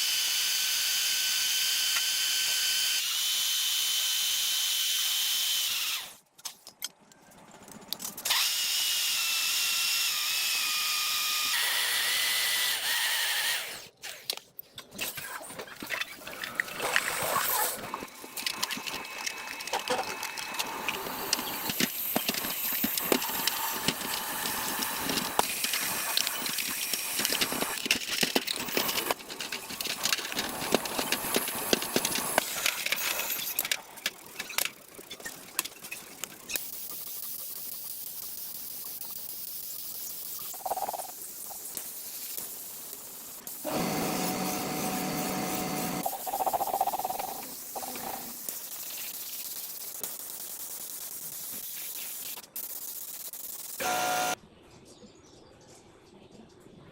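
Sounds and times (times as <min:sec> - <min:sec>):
hissing power tool whine: 0:08.3 - 0:13.9, 0:19.9 - 0:27.9, 0:43.4 - 0:48.7, 0:53.7 - 0:54.4
tools clicking and scraping metal: 0:18.3 - 0:36.6.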